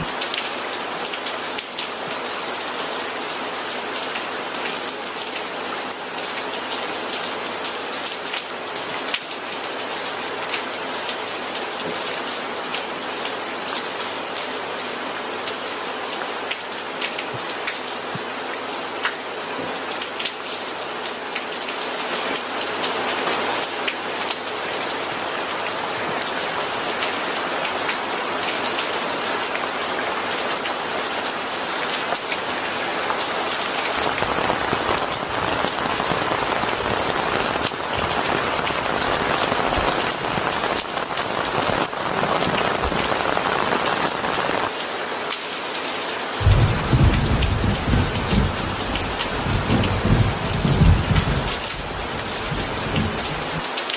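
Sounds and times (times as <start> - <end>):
steady rain: 0.0 - 53.9
thunder rumbling: 33.9 - 44.2, 46.4 - 53.6.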